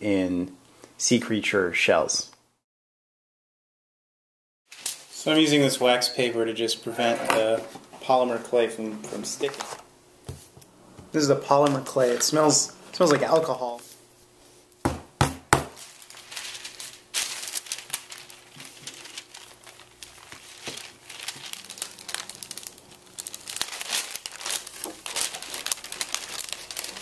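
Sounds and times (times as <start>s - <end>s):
wax paper crinkling: 4.7s - 5.4s, 11.5s - 14.1s, 15.7s - 27.0s.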